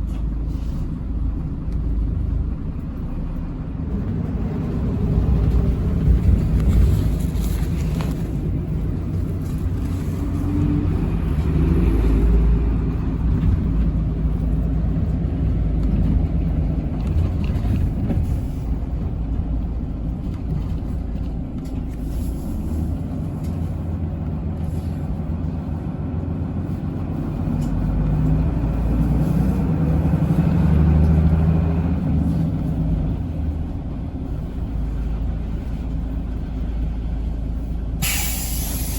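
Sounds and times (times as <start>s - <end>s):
bus engine running: 0.0s - 38.9s
road rumble: 0.0s - 38.9s.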